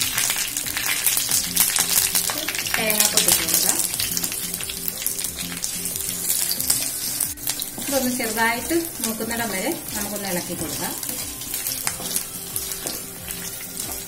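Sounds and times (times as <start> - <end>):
spices crackling in hot oil: 0.0 - 14.0
spatula stirring in pan: 3.2 - 14.0.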